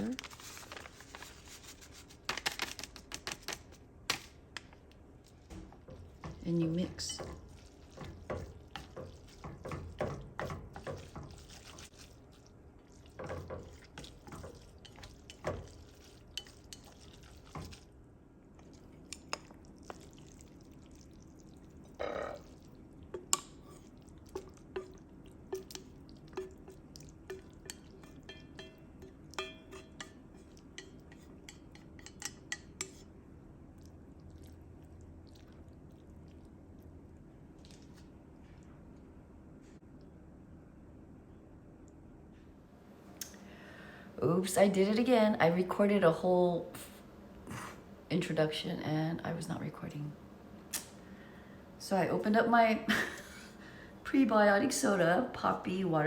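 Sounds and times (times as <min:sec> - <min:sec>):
utensil scraping in a pot: 0:00.1 - 0:02.3, 0:05.3 - 0:17.9, 0:21.9 - 0:33.1.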